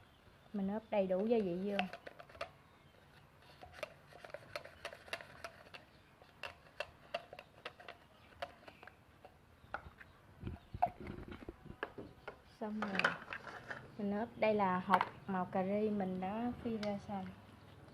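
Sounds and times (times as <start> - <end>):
spoon and containers clicking: 1.2 - 2.6, 3.5 - 13.9.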